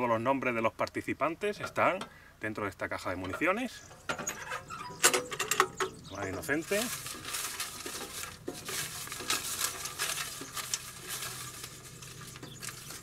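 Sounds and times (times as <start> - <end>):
paper slips rustling in a box: 6.2 - 13.0.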